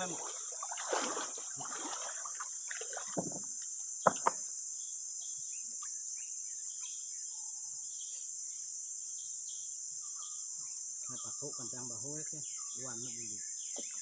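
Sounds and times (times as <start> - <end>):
insects chorus: 0.0 - 14.0
dull thud: 3.0 - 4.4
sharp knocks: 3.1 - 4.4.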